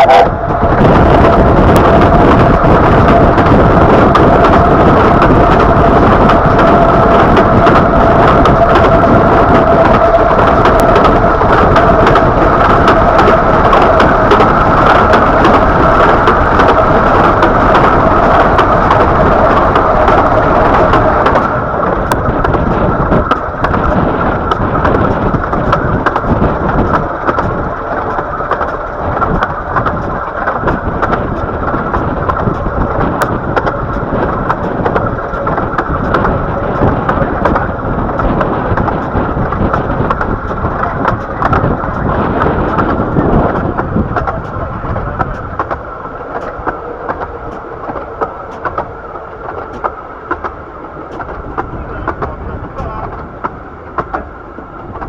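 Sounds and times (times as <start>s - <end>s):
high steady tone: 0.0s - 0.8s
train wheels rumbling on rail: 0.0s - 55.0s
wind on microphone: 0.0s - 55.0s.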